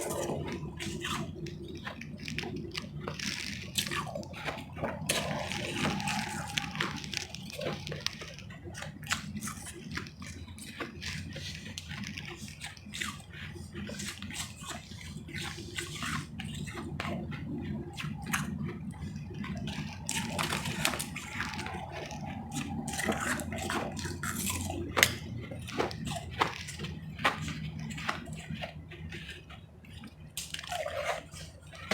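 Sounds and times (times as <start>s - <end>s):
chewing crunchy ice: 0.0s - 31.9s.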